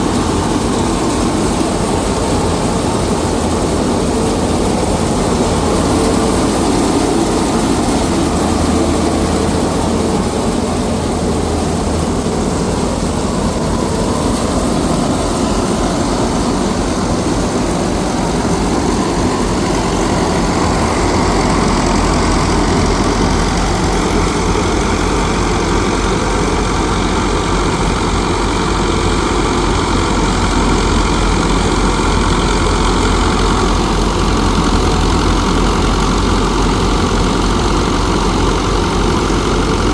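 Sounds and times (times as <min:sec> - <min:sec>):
engine running loudly: 0:00.0 - 0:39.9.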